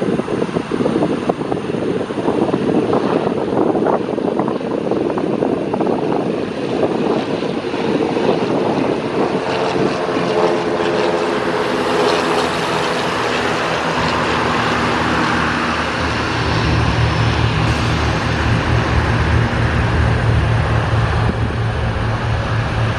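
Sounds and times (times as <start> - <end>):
propeller aircraft passing: 0.0 - 22.9.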